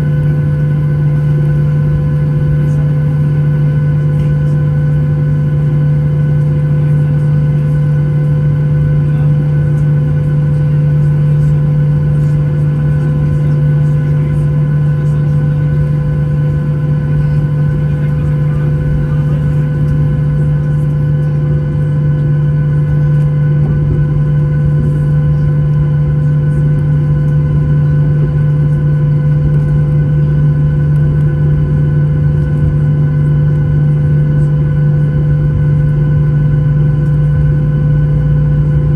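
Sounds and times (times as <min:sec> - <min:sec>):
airplane cabin drone: 0:00.0 - 0:38.9.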